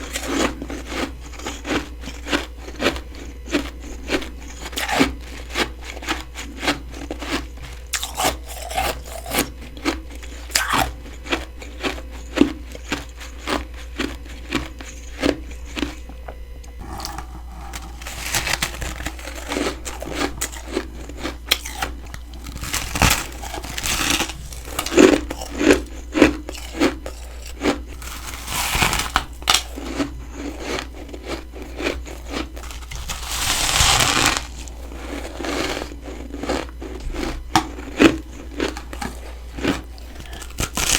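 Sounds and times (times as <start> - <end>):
crunching frost being chewed: 0.0 - 40.9.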